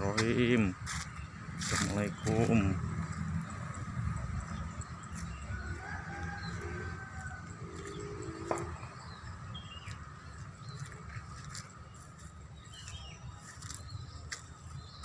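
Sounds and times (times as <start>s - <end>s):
birds calling: 0.0s - 15.0s
steady low rumble: 0.0s - 15.0s.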